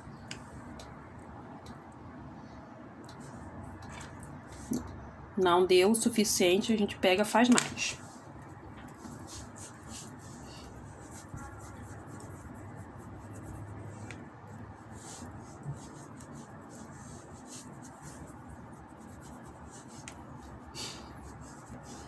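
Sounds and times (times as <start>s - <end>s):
steady low hum: 0.0s - 22.0s
hands rubbing clay: 8.8s - 22.0s.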